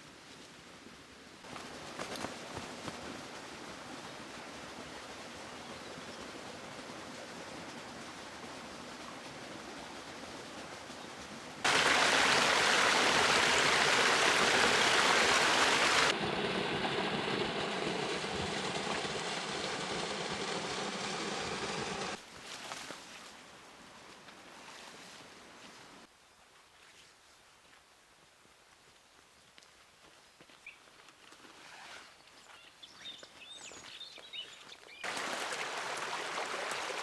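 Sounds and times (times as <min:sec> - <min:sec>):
river water rushing: 0:11.6 - 0:16.2, 0:35.0 - 0:37.0.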